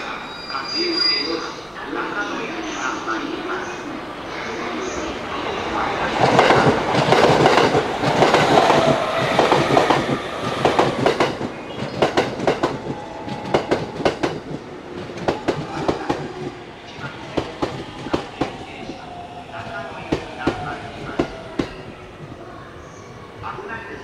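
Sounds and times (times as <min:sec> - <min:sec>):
electric train running past: 0:00.0 - 0:24.0
wheels clacking over rail joints: 0:06.2 - 0:16.6.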